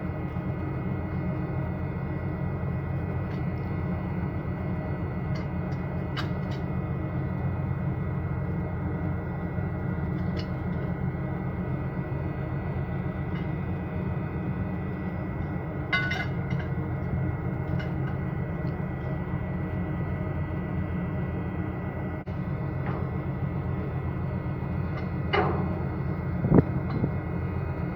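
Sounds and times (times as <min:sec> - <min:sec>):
ship engine hum: 0:00.0 - 0:27.9.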